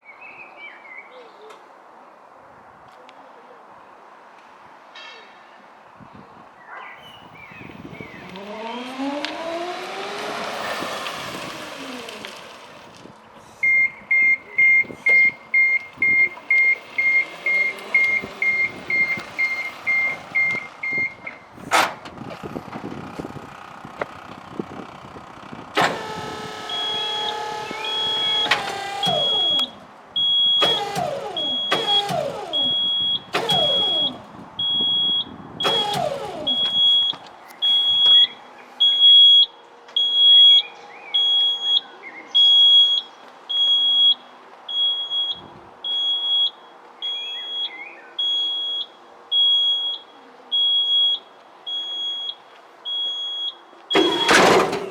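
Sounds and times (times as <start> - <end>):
electric motor whine: 8.0 - 12.7, 25.8 - 29.8
electric motor short bursts: 8.2 - 12.7, 25.8 - 29.8, 30.6 - 34.2, 35.6 - 36.8
slow beeping: 13.6 - 21.3, 25.8 - 41.8
high warning beeper: 13.7 - 21.3, 26.2 - 41.8.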